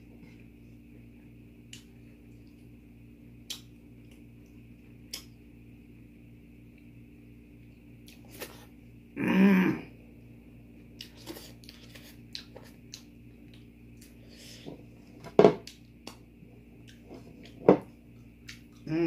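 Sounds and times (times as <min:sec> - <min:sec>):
person chewing: 0:10.9 - 0:14.6, 0:15.6 - 0:19.0.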